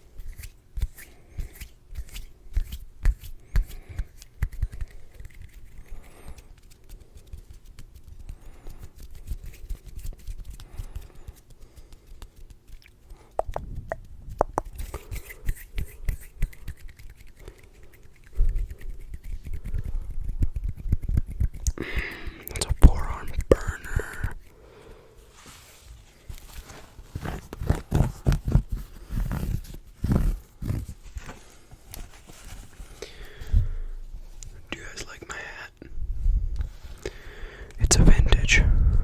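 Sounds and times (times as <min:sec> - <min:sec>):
hands rubbing: 0:00.2 - 0:22.4, 0:23.1 - 0:33.5
fingers tapping: 0:13.4 - 0:14.8.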